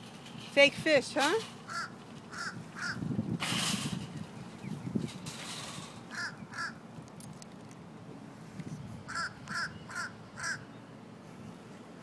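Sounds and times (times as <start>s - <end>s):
crow cawing: 1.7s - 3.0s, 6.1s - 6.8s, 9.1s - 10.7s.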